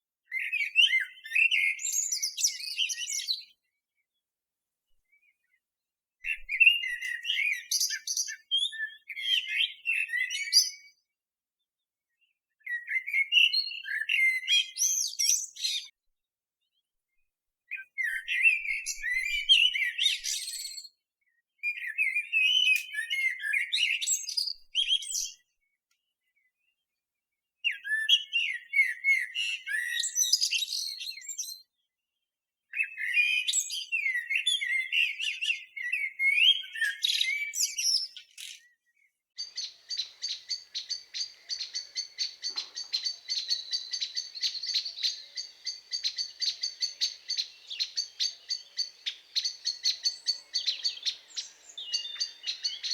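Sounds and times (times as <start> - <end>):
blackbird singing fluty notes: 6.2 - 11.0, 12.6 - 15.9, 17.7 - 20.9, 21.6 - 25.4, 27.7 - 31.7, 32.7 - 38.8, 39.4 - 52.9.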